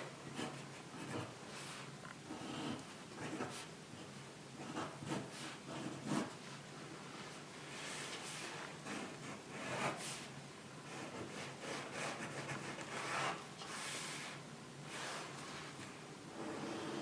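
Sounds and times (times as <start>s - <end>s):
pen scratching on paper: 0.3s - 3.7s, 4.6s - 6.4s, 7.8s - 13.9s.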